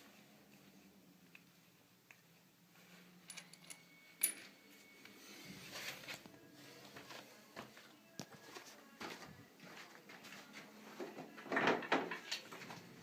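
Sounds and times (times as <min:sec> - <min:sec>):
metal parts clicking and clinking: 0:03.2 - 0:04.6
rustling handling noise: 0:05.4 - 0:11.2.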